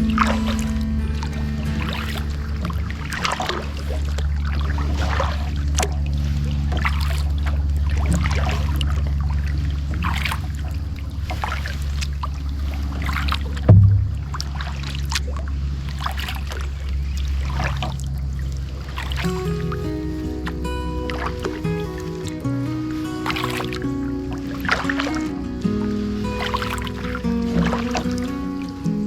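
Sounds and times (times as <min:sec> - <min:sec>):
kayak paddle strokes: 0:00.0 - 0:29.0
steady low hum: 0:00.0 - 0:29.0
water splashing and dripping: 0:00.0 - 0:29.0
paddle knocking against hull: 0:13.6 - 0:14.6.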